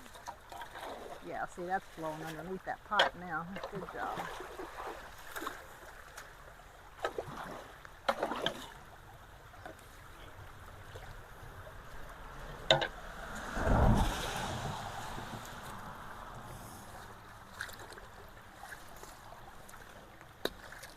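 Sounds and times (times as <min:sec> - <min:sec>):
knocks and splashes: 0:00.0 - 0:20.9
water running through culvert: 0:00.0 - 0:20.9
low rumble: 0:11.4 - 0:17.5
rain: 0:11.9 - 0:17.4.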